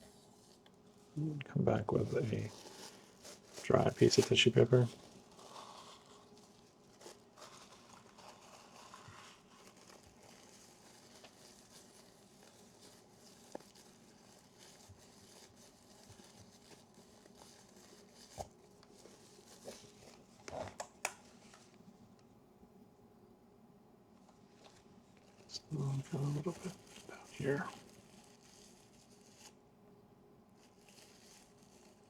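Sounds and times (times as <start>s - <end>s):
lens tissue rustling: 0.1s - 1.2s, 1.8s - 22.3s, 24.2s - 29.7s, 30.5s - 32.0s.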